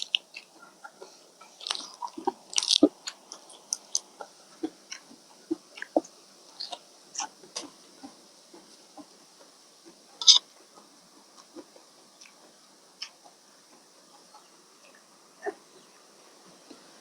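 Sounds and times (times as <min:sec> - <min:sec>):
person chewing food: 0:01.4 - 0:06.0.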